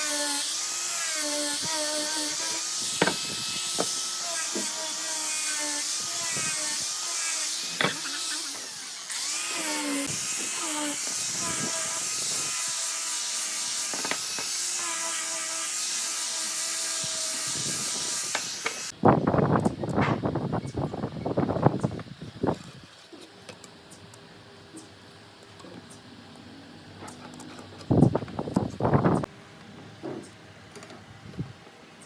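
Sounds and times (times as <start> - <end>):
power tool motor cutting wood: 0.0 - 18.9.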